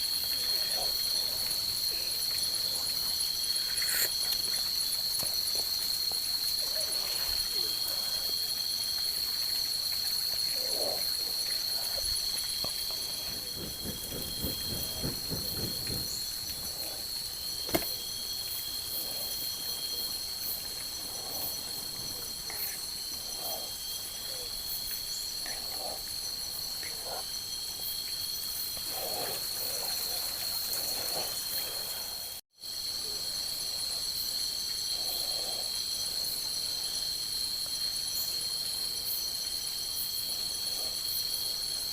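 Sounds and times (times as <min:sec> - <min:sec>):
high shrill insect trill: 0:00.0 - 0:41.9
lower insect trill: 0:00.0 - 0:41.9
low pulsing rattle: 0:10.2 - 0:22.2.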